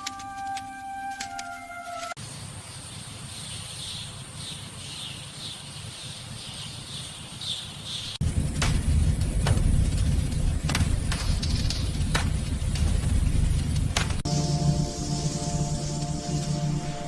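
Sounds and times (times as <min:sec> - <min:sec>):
held music note: 0:00.0 - 0:02.2
low rumble: 0:08.2 - 0:17.0
chirping call: 0:14.3 - 0:17.0
high-pitched drone: 0:14.3 - 0:17.0.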